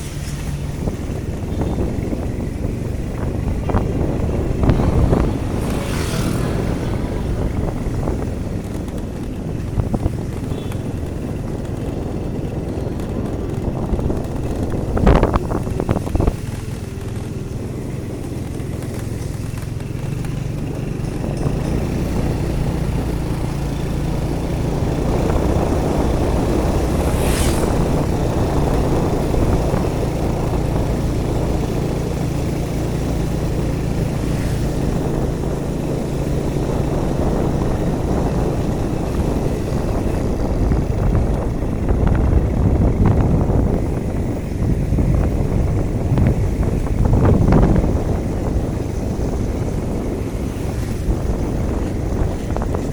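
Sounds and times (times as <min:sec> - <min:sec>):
vehicle engine and road noise: 0:00.0 - 0:52.9.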